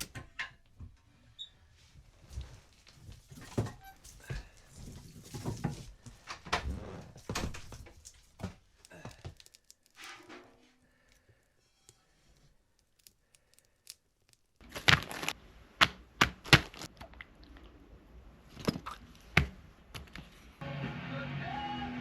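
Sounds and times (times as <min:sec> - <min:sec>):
rustling: 0:01.1 - 0:17.8
sharp knocks and cracks: 0:12.8 - 0:16.9.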